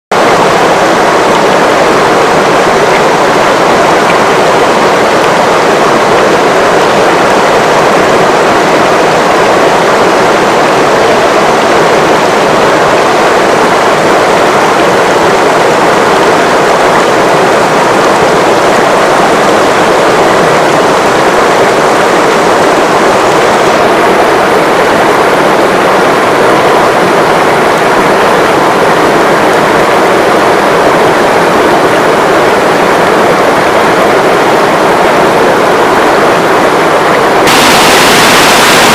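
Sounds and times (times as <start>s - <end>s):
river water rushing: 0.1s - 38.9s.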